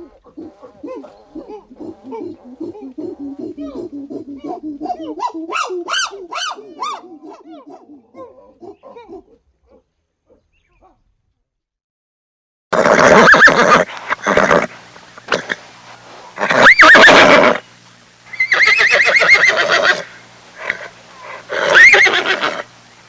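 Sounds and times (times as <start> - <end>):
short high animal calls: 16.4 - 17.6, 18.3 - 22.7.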